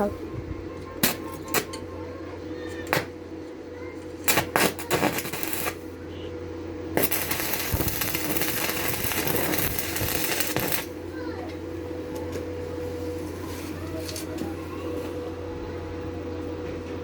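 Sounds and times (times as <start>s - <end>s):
machine hum: 0.0s - 13.4s
loud hissing crackle: 4.3s - 5.9s, 6.9s - 11.0s
steel pieces clinking: 7.0s - 10.9s.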